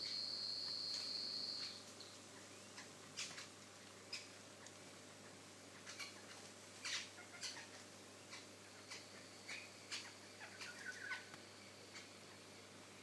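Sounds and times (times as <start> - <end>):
birds chirping: 5.2 - 12.5.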